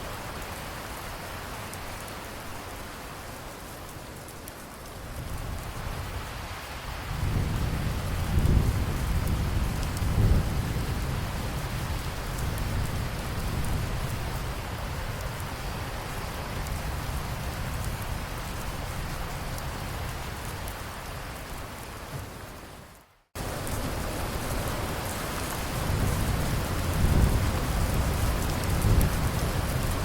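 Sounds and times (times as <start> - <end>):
steady rain falling: 0.0 - 30.0
low roll of thunder: 7.0 - 15.4, 25.5 - 30.0.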